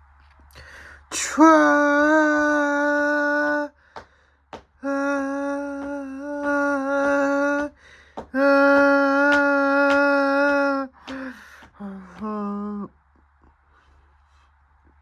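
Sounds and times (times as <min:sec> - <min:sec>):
breaths: 0:00.5 - 0:01.2, 0:03.7 - 0:04.5, 0:07.7 - 0:08.4, 0:10.9 - 0:12.3, 0:13.5 - 0:14.6
person humming: 0:01.0 - 0:03.7, 0:04.8 - 0:12.9.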